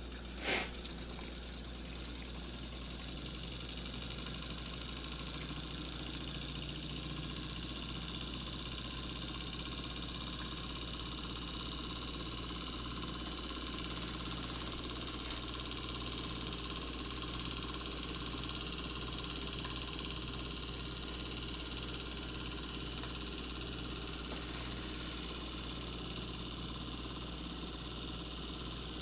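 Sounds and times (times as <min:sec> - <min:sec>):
high hiss: 0:00.4 - 0:00.7.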